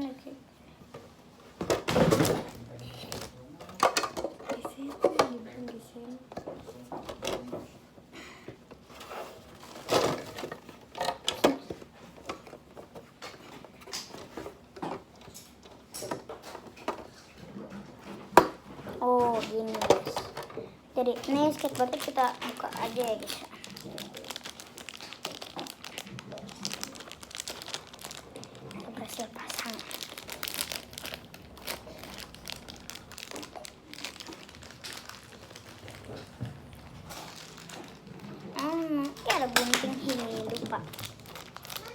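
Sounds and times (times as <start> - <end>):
plastic packaging crinkling: 1.7 - 5.7, 8.8 - 17.2, 19.0 - 41.9
rustling: 21.0 - 41.9.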